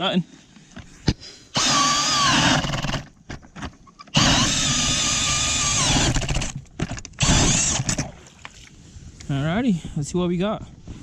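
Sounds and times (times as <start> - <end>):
power ice auger drilling: 1.6 - 3.2, 4.1 - 8.1.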